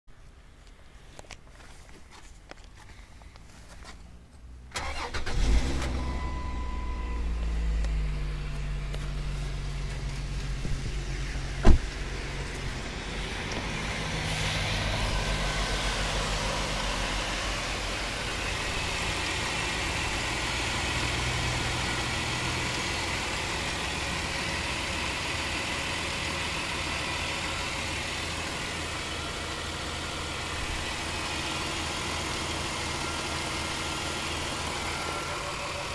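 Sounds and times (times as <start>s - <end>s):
car engine cranking and running: 4.6s - 35.9s
loud sharp thump: 11.6s - 12.0s.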